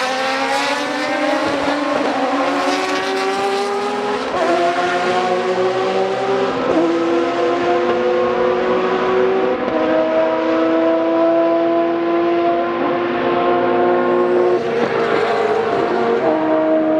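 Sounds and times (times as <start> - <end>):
race car engine at full throttle: 0.0 - 16.9.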